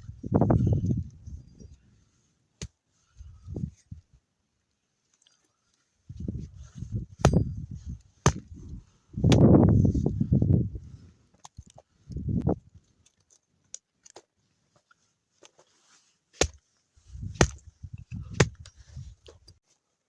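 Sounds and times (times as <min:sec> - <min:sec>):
dull low thuds: 0:06.2 - 0:10.7, 0:17.1 - 0:18.7
wood chopping knocks: 0:08.2 - 0:08.4, 0:16.4 - 0:16.6, 0:17.4 - 0:17.6.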